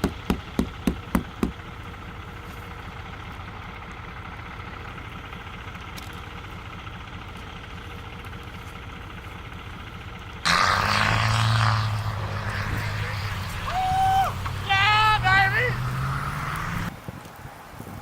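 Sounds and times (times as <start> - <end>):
vehicle engine idling: 0.0 - 16.9
loud engine drone with hiss: 10.5 - 16.9.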